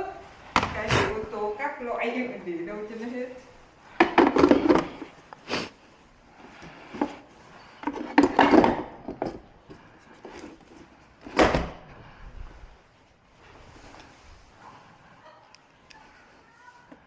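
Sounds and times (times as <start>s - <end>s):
objects knocking and bumping: 0.5s - 1.3s, 3.9s - 5.2s, 7.8s - 10.6s.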